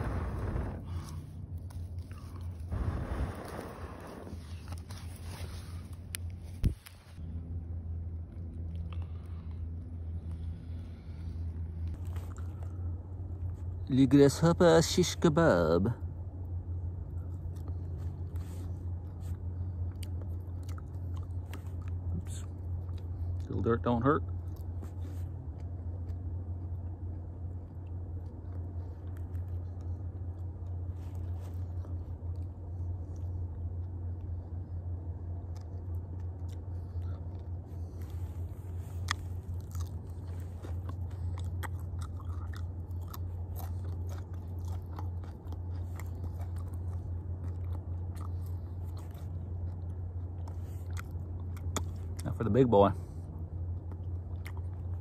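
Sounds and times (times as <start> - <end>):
low steady hum: 0.0 - 55.0
person chewing and crunching: 0.5 - 2.8, 11.4 - 13.7, 17.1 - 23.6, 24.2 - 52.5, 53.1 - 55.0.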